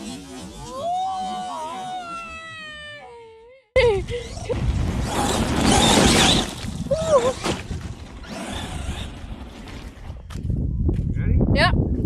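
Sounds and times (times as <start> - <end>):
rc truck driving on wet ground: 0.0 - 2.0, 4.3 - 10.3
wind buffeting microphone: 4.0 - 12.0.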